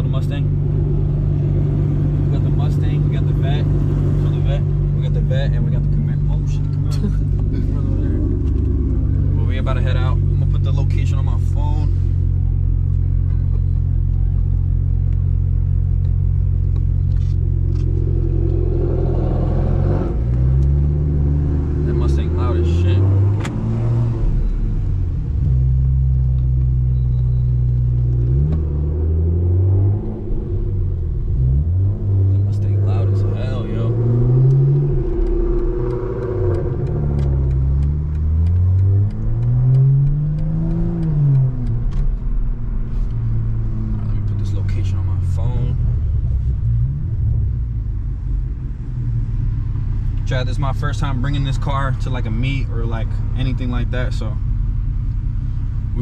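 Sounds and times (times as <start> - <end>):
car engine idling: 0.0 - 29.3, 30.2 - 56.0
engine revving up: 17.2 - 24.5, 28.2 - 42.2.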